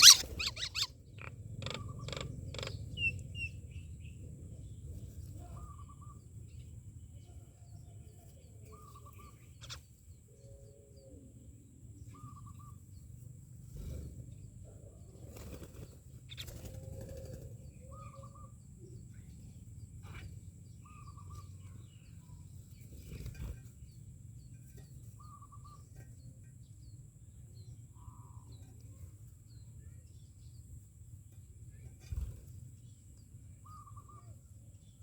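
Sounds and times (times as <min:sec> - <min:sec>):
myna bird wavering call: 0:00.0 - 0:03.6
faint high chirps: 0:00.0 - 0:04.1
steady low rumble: 0:00.5 - 0:07.2.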